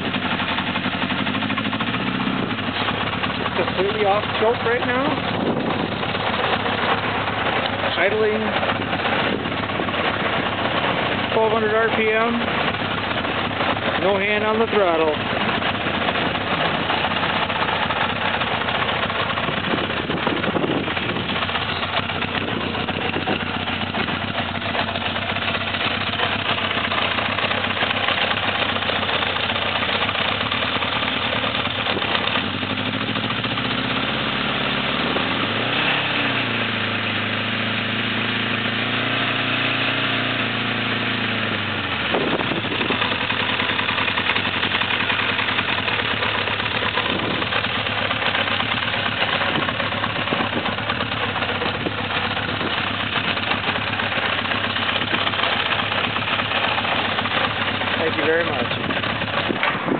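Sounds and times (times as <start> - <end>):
motorcycle engine idling: 0.0 - 59.9
pitched hum: 1.8 - 36.6, 46.1 - 47.7.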